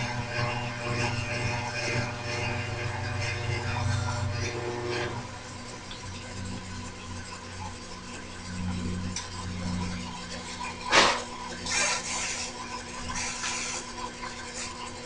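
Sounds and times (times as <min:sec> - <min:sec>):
low hum: 0:00.0 - 0:12.1
metal parts rasping scrapes: 0:10.9 - 0:13.9.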